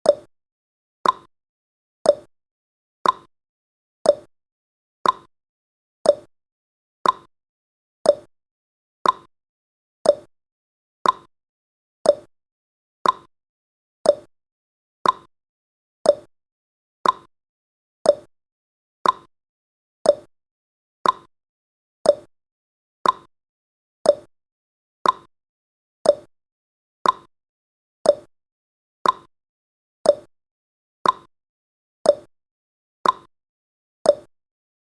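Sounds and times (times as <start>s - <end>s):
clock ticking: 1.0s - 1.3s, 5.0s - 5.3s, 7.0s - 7.3s, 8.1s - 8.3s, 9.0s - 9.3s, 10.1s - 10.3s, 11.0s - 11.3s, 12.1s - 12.3s, 13.0s - 13.3s, 14.1s - 14.3s, 15.0s - 15.3s, 16.1s - 16.3s, 17.0s - 17.3s, 18.1s - 18.3s, 19.0s - 19.3s, 20.1s - 20.3s, 21.0s - 21.3s, 22.1s - 22.3s, 23.0s - 23.3s, 24.1s - 24.3s, 25.0s - 25.3s, 26.0s - 26.3s, 27.0s - 27.3s, 28.1s - 28.3s, 29.0s - 29.3s, 30.1s - 30.3s, 31.0s - 31.3s, 32.1s - 32.3s, 33.0s - 33.3s, 34.1s - 34.3s.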